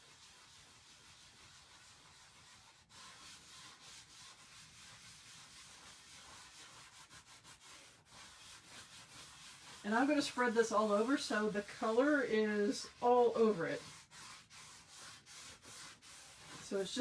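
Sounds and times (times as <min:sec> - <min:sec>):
rubbing paste on a wet surface: 0:00.0 - 0:17.0.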